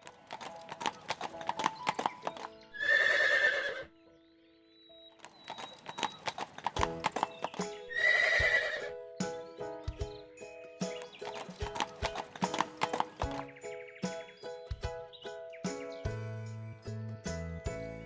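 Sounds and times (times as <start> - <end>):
horse hooves clip-clopping: 0.0 - 3.0, 5.2 - 8.9, 10.8 - 15.8
light background music: 0.0 - 18.0
horse neighing: 2.8 - 3.9, 8.0 - 8.9.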